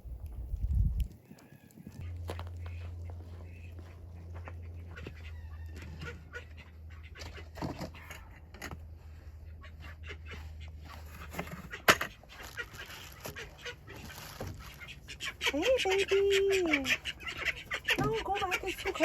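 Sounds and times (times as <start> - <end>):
hens clucking softly: 1.2 - 19.0
steady low hum: 2.0 - 11.8.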